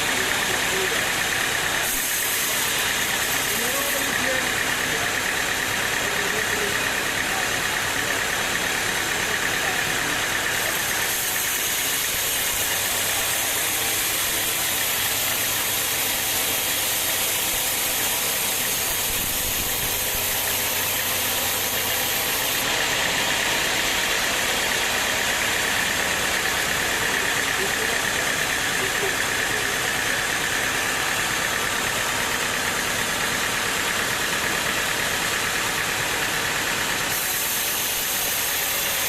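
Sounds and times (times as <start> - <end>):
sawmill machinery droning: 0.0 - 39.0.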